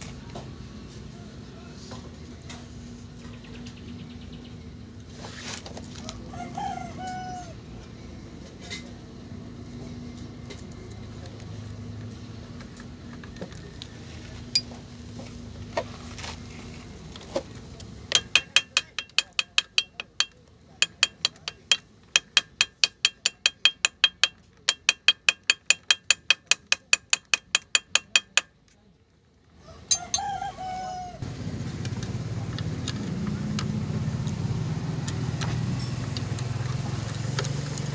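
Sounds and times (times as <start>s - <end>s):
rooster crowing: 6.1s - 7.6s, 29.6s - 31.3s.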